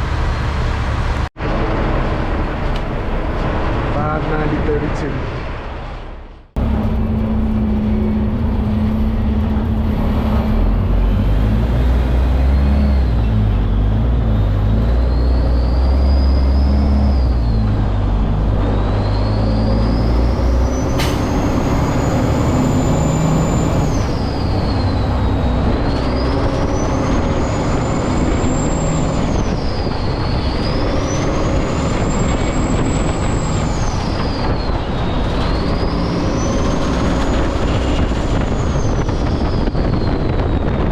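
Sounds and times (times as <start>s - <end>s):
diesel truck engine shifting gears: 5.7s - 40.9s
high whine with revs: 6.6s - 40.9s.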